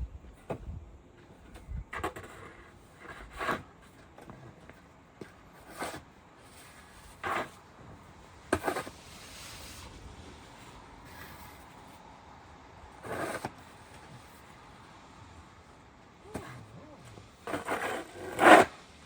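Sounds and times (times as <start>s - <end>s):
snow shovel scraping snow: 5.6s - 7.7s, 8.5s - 11.6s, 13.0s - 14.4s, 16.2s - 19.0s.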